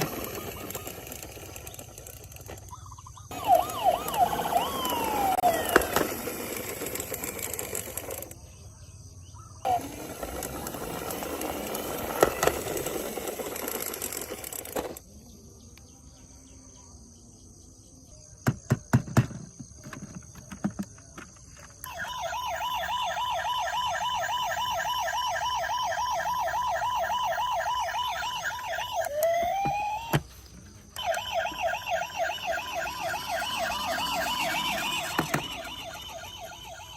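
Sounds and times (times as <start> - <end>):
toy siren warbling: 0.0 - 8.4, 9.6 - 15.0, 21.8 - 36.9.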